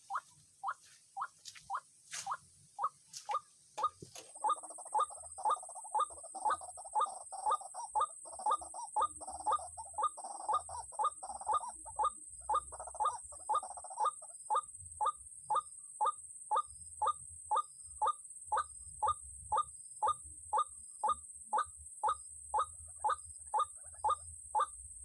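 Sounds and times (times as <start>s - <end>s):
waterhen calling: 0.0s - 14.2s.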